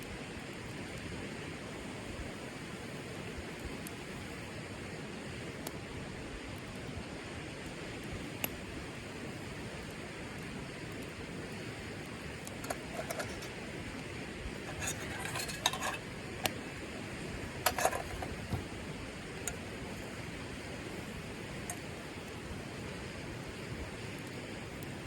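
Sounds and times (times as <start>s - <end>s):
utensils clinking against dishes: 12.6s - 13.5s, 14.6s - 16.0s, 17.6s - 18.6s.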